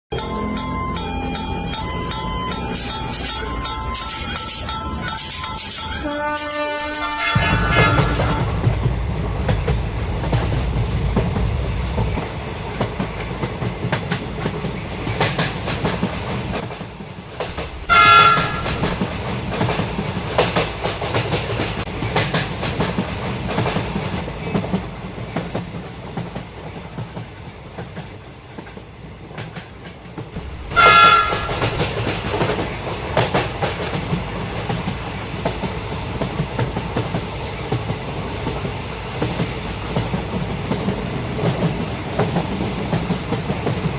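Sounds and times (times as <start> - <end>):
train rumbling on rails: 0.1 - 43.9
train horn blasts: 6.0 - 8.7, 17.8 - 19.0, 30.6 - 31.9.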